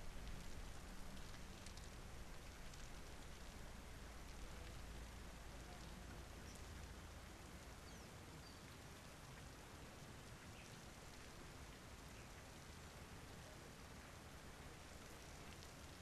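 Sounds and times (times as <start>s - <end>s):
faint rain falling: 0.0s - 16.0s.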